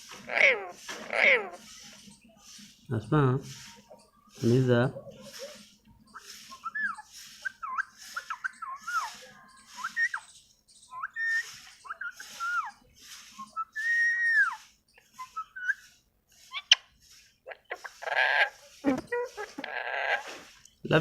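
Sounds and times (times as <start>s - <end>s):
parrot harsh call: 0.1s - 1.6s, 17.5s - 20.4s
parrot whistling and chattering: 0.1s - 2.6s, 3.7s - 20.4s.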